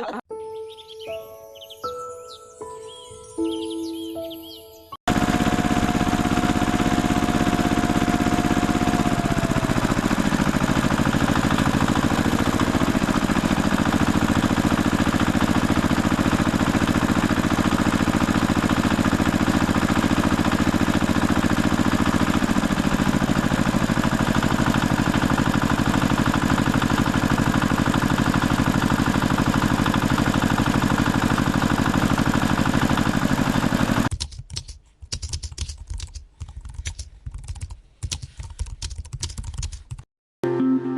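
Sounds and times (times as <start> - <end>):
tractor engine running: 5.1 - 34.1.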